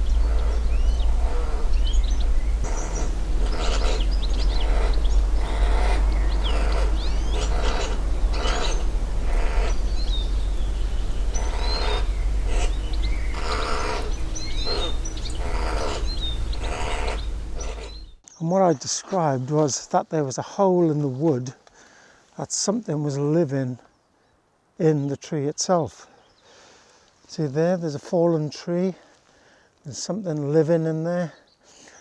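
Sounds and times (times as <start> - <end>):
scratching and scraping bursts: 0.0 - 18.2
steady low rumble: 0.0 - 18.2
small birds chirping: 0.0 - 19.4.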